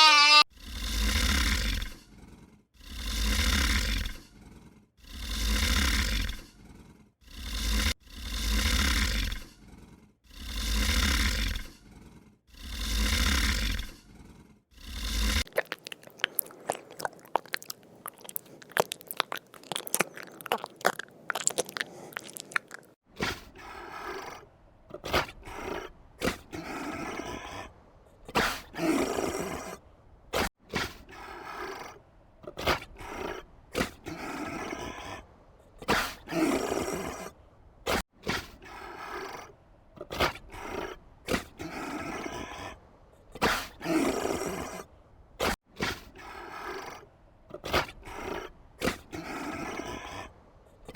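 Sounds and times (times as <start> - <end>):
farm animal long calls: 0.0 - 0.5, 14.8 - 23.0
short repeated animal calls: 0.0 - 0.5
crisp crunching: 15.5 - 23.0.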